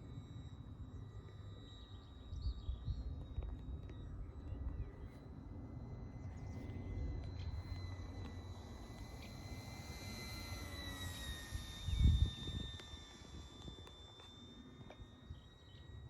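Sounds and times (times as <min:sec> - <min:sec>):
model plane motor whine: 0:00.0 - 0:16.0
wind rumble on microphone: 0:11.2 - 0:13.9.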